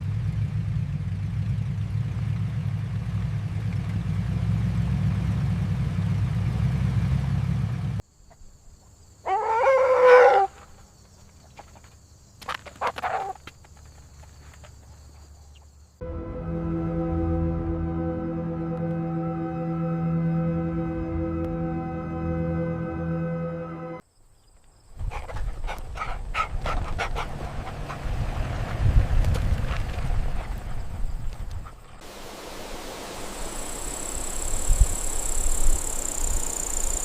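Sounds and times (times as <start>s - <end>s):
ambient music: 16.0s - 24.0s
faint high steady whine: 32.0s - 37.0s.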